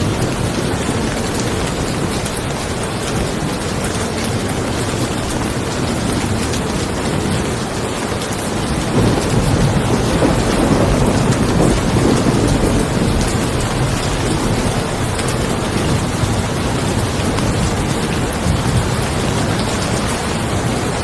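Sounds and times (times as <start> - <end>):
heavy rain: 0.0 - 21.0
thunder rumble: 0.0 - 21.0.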